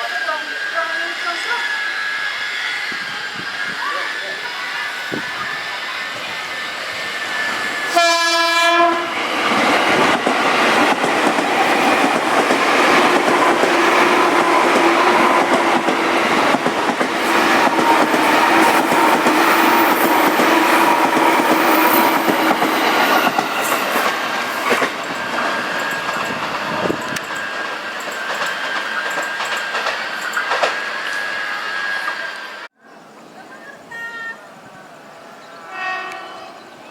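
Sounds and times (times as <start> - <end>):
train horn blast: 7.9 - 9.2, 35.6 - 36.7
train wheels clattering on rail: 8.1 - 31.2.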